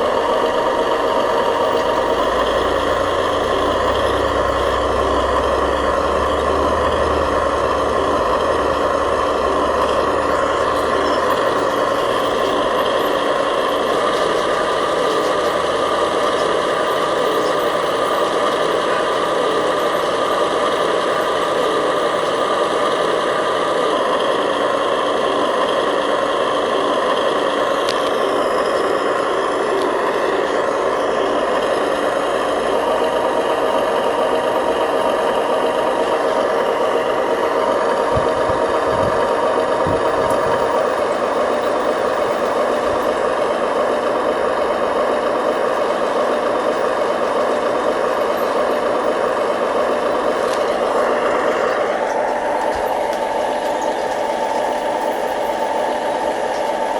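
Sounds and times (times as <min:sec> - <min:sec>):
electric motors whining: 0:00.0 - 0:56.9.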